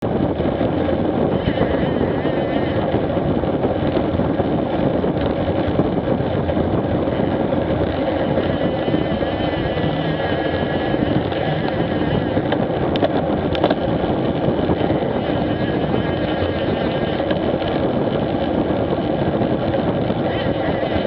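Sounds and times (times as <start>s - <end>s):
motorcycle engine running: 0.0s - 21.0s
wind noise on microphone: 0.0s - 21.0s.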